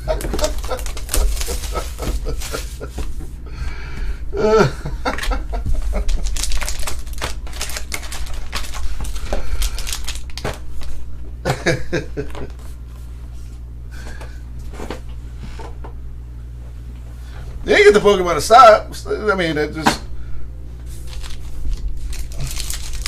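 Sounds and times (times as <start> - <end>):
plastic wrapper crackling: 0.1 - 2.8, 6.0 - 11.0, 21.0 - 23.0.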